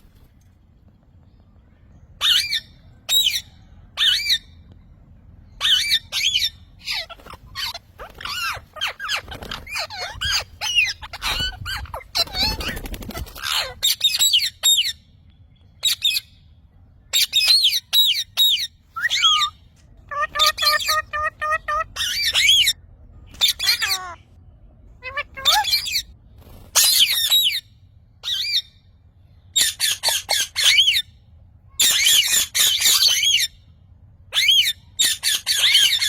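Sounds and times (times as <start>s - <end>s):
parrot squawking and chirping: 2.2s - 4.6s, 5.5s - 15.0s, 15.8s - 16.4s, 17.1s - 24.3s, 25.0s - 26.2s, 26.8s - 28.8s, 29.5s - 31.2s, 31.8s - 33.6s, 34.3s - 36.0s.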